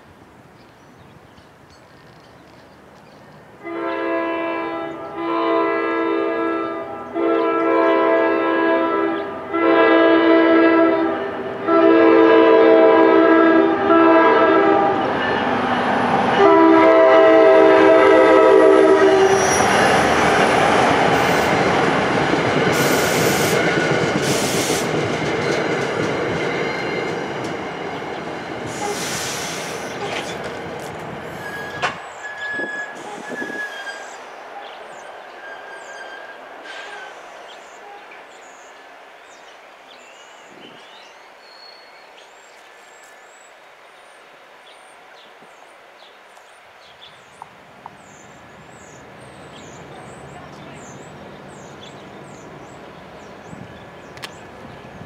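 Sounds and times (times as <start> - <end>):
train horn blasts: 3.6 - 15.4, 16.4 - 19.8, 28.7 - 30.2, 31.3 - 34.2, 35.3 - 37.2
train wheels rushing on rail: 7.2 - 55.0.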